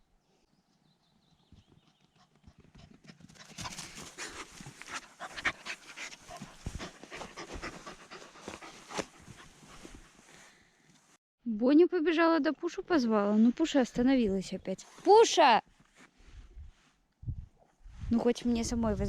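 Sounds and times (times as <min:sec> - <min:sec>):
dog panting rapidly: 0:01.8 - 0:10.1.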